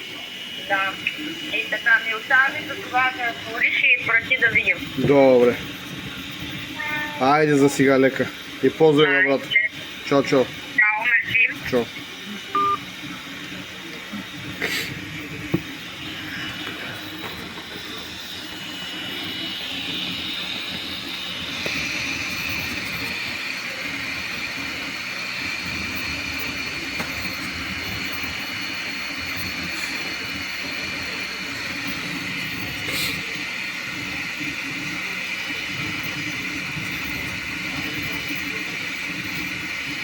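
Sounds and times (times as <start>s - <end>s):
printer hiss: 0.1s - 40.0s
high whining tones: 0.9s - 13.4s.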